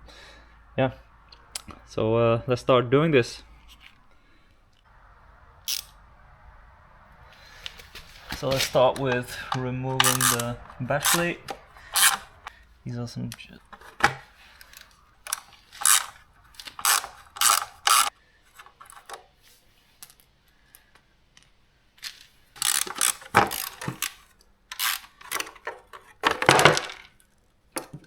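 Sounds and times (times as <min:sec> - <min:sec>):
socket ratchet clicking: 0:05.7 - 0:05.9, 0:09.0 - 0:12.5, 0:14.0 - 0:18.1, 0:22.6 - 0:25.7.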